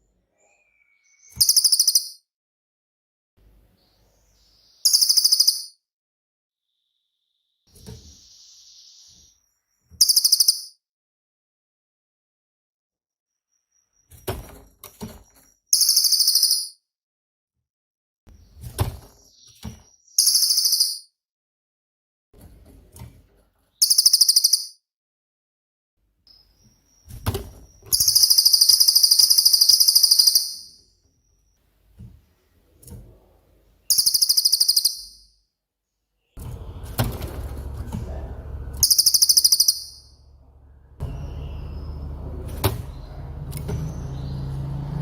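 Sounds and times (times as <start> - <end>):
songbird rattling trill: 1.2 - 2.2, 4.8 - 5.8, 10.0 - 10.7, 15.7 - 16.7, 20.2 - 21.0, 23.8 - 24.8, 26.3 - 30.8, 33.9 - 35.2, 38.8 - 40.3
low rumbling noise: 36.4 - 45.0.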